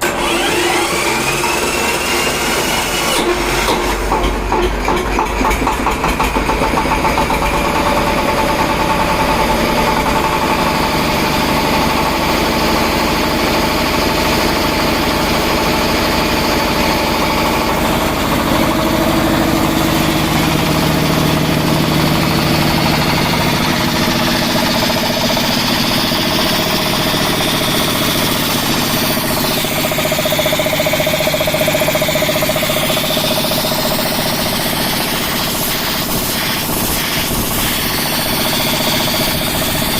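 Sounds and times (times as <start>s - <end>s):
engine driving air compressor: 0.0s - 39.9s.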